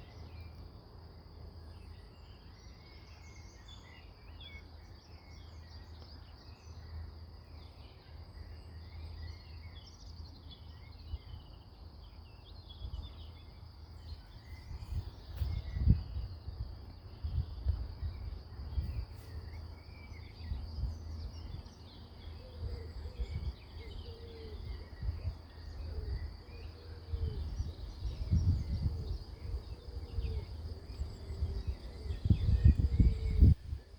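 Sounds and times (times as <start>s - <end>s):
birds chirping: 7.7s - 33.9s.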